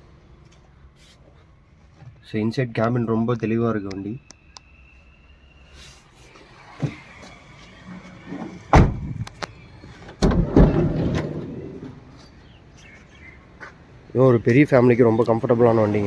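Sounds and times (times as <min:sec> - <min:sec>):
sliding door banging shut: 0:07.8 - 0:12.2
sliding van door knock: 0:08.3 - 0:09.3, 0:10.2 - 0:12.1.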